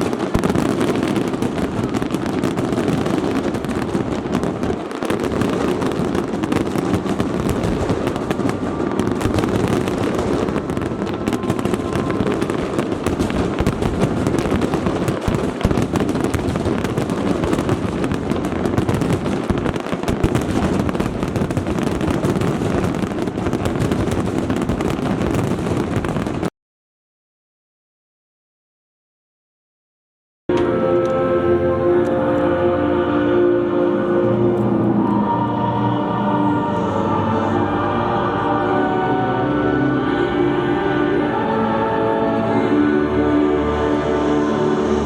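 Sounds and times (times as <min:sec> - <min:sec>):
fireworks bursting and crackling: 0:00.0 - 0:26.5.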